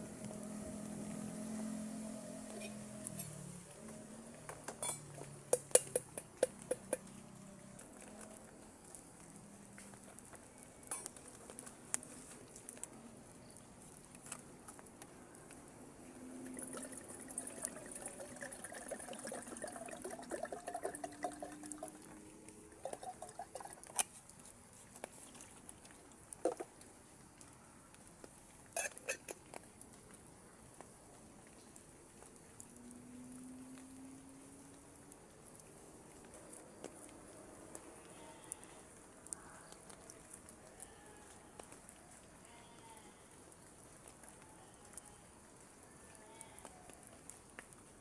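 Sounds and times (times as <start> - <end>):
faint watery patter: 0.0 - 48.0
cookware clicking and clinking: 4.7 - 7.0, 28.8 - 29.4
water pouring into container: 16.2 - 24.1.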